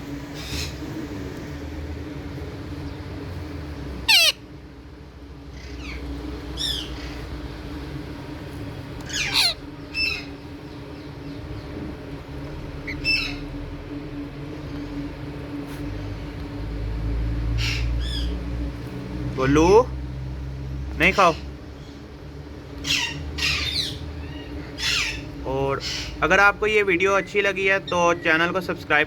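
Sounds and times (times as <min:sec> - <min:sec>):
steady low hum: 0:00.0 - 0:29.0
parrots squawking: 0:04.0 - 0:04.5, 0:05.5 - 0:07.3, 0:09.0 - 0:10.4, 0:12.8 - 0:13.6, 0:17.5 - 0:18.4, 0:22.8 - 0:28.3.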